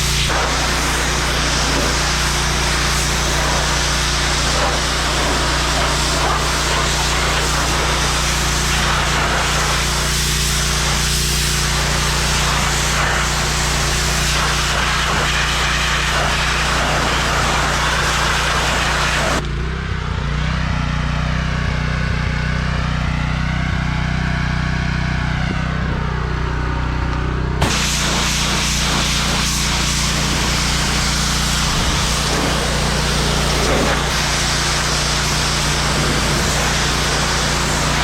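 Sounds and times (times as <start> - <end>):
high-pressure water spray hiss: 0.0 - 19.4, 27.6 - 38.0
pressure washer engine running: 0.0 - 38.0.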